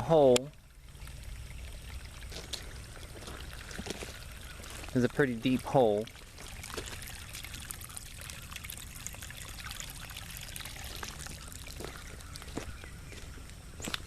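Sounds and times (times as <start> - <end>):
water trickling and pouring: 0.0 - 14.0
small scattered ticks: 10.9 - 14.0.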